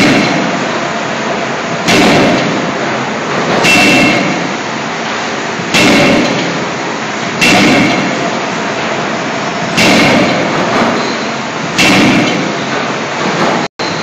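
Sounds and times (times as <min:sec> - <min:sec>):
forging hammer impacts: 0:00.0 - 0:00.7, 0:01.8 - 0:02.8, 0:03.4 - 0:04.6, 0:05.7 - 0:06.8, 0:07.4 - 0:08.5, 0:09.7 - 0:11.0, 0:11.8 - 0:12.8
steady machine noise: 0:00.0 - 0:14.0.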